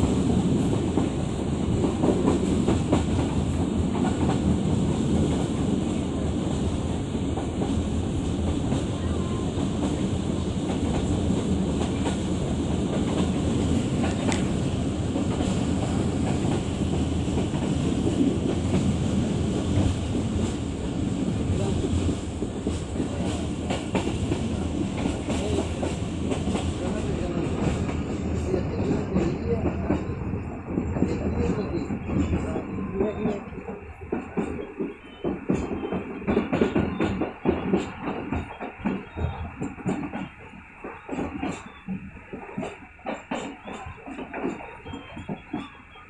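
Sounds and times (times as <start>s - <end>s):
train rumbling on rails: 0.0s - 46.0s
wheels clacking over rail joints: 21.5s - 46.0s.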